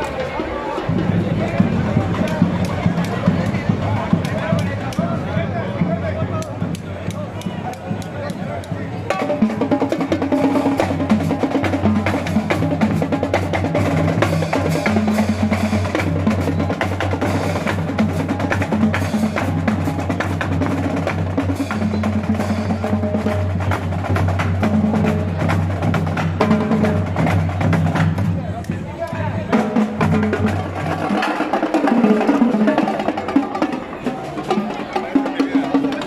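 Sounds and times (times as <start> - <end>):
carnival music: 0.0 - 36.0
drums: 0.0 - 36.0
woodblock clacks: 6.4 - 8.8.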